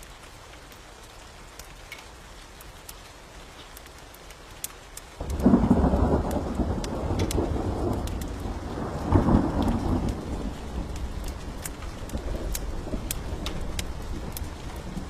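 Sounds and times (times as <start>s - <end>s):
sharp raindrops: 0.0s - 15.0s
steady rain: 0.0s - 15.0s
thunder rumbling: 5.2s - 15.0s.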